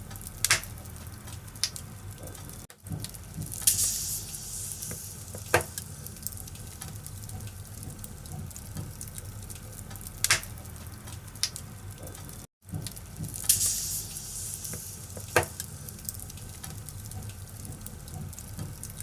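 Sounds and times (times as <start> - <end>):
firewood popping: 0.0 - 19.0
wood fire crackling: 0.0 - 19.0.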